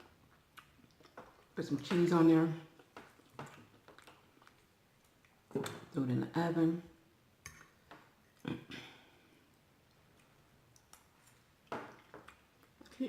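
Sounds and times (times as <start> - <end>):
mouth noises while chewing: 2.6 - 5.7.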